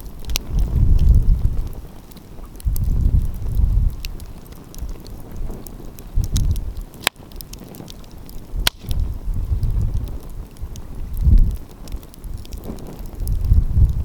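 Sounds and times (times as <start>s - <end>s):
wind rumbling on microphone: 0.0s - 14.0s
wood fire crackling and popping: 0.0s - 14.0s.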